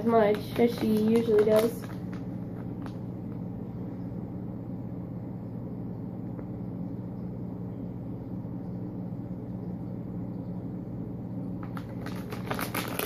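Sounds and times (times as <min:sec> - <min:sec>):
treat bag crinkling: 0:00.0 - 0:03.3, 0:11.6 - 0:13.0
steady low hum: 0:00.0 - 0:13.0.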